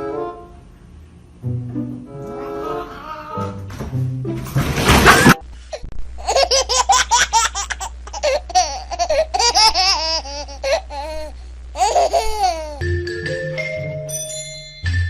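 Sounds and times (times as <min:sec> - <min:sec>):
steady low hum: 0:00.0 - 0:04.4, 0:05.1 - 0:13.0
high-pitched laughing: 0:02.3 - 0:03.6.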